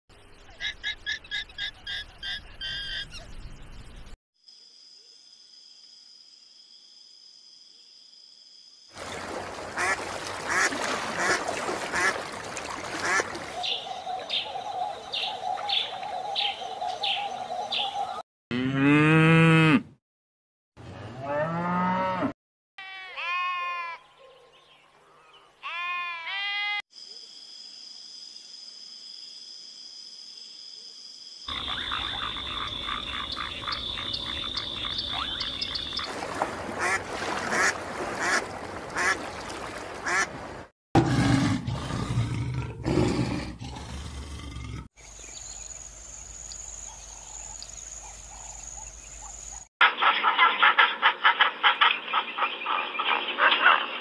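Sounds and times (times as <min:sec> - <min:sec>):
waterbird calls: 0:00.5 - 0:03.3, 0:09.0 - 0:18.2, 0:31.5 - 0:40.7, 0:46.8 - 0:54.0
cattle mooing: 0:18.5 - 0:19.9, 0:21.1 - 0:22.3
sheep bleating: 0:22.8 - 0:24.0.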